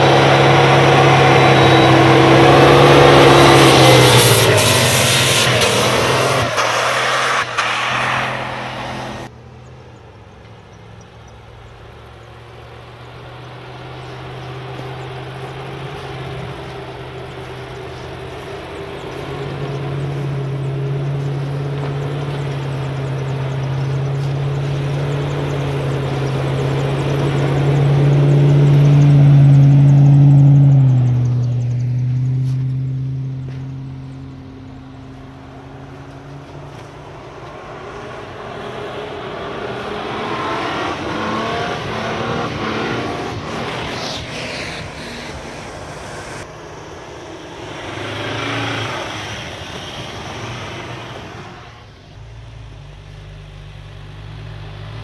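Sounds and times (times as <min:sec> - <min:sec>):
off-road engine droning: 0:00.0 - 0:55.0
loud rushing noise: 0:40.7 - 0:51.5.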